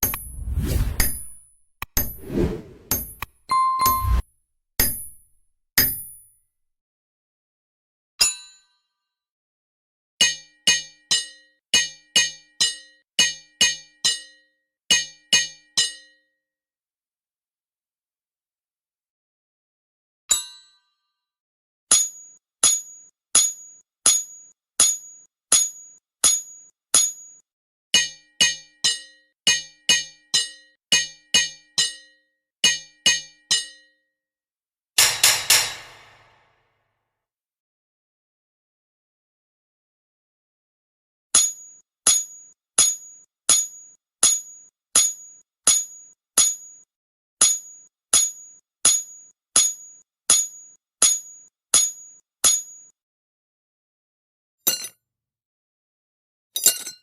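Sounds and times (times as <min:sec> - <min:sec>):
hammer striking an anvil: 0:35.0 - 0:36.5.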